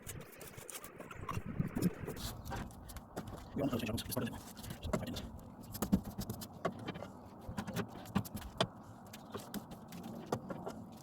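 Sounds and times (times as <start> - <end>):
brush clicks and knocks on metal: 4.4 - 11.0.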